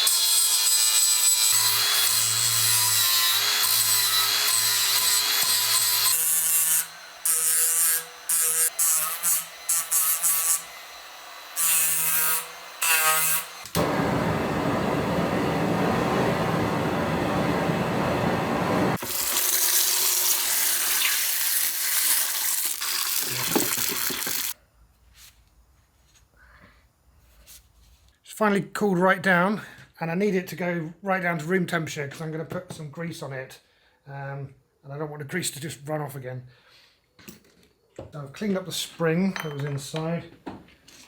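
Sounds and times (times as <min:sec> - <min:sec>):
power tool grinding metal: 0:00.0 - 0:14.1.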